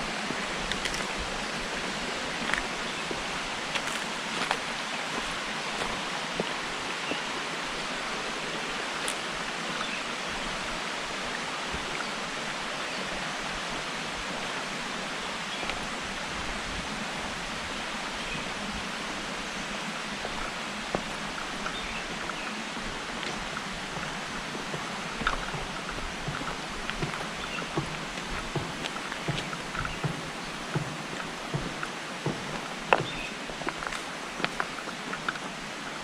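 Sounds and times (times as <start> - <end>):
rushing running water: 0.0 - 36.0.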